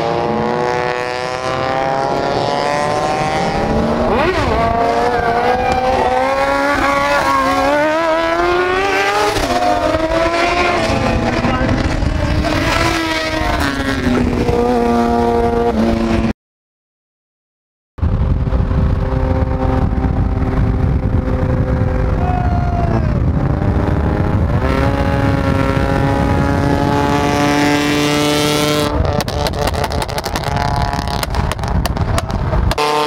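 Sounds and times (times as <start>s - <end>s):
car engine at speed: 0.0s - 16.3s, 18.0s - 33.0s
road and wind rush: 0.0s - 16.3s, 18.0s - 33.0s
fluttering wind buffeting: 18.0s - 27.8s.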